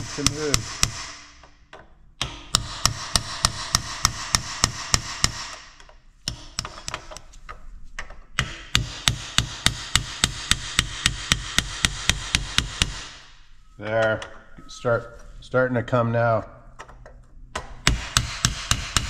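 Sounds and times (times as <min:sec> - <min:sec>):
hammer striking chisel on metal: 0:00.0 - 0:07.1, 0:08.4 - 0:13.2, 0:17.6 - 0:19.0.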